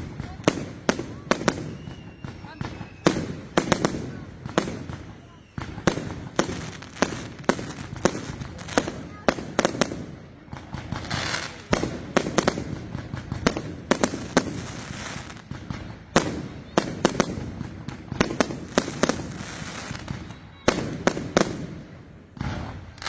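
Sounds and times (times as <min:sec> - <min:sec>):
firework bangs echoing: 0:00.0 - 0:23.0.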